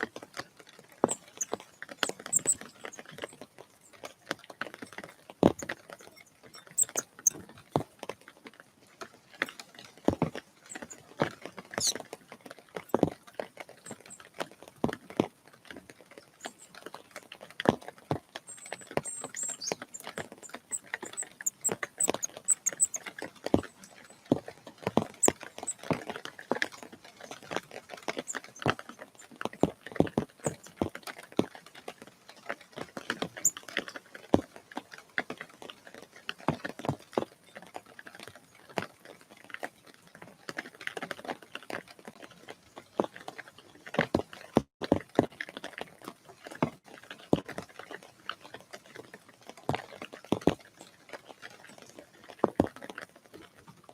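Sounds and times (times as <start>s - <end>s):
high bird calls: 1.0s - 3.2s, 6.0s - 7.4s, 11.7s - 12.0s, 18.5s - 24.3s.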